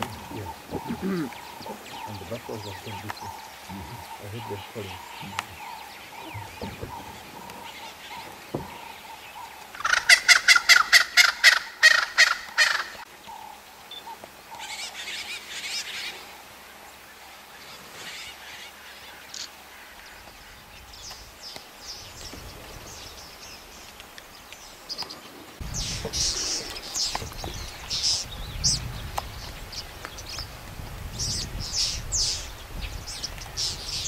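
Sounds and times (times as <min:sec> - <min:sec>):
bird cackling call: 0:00.0 - 0:16.1.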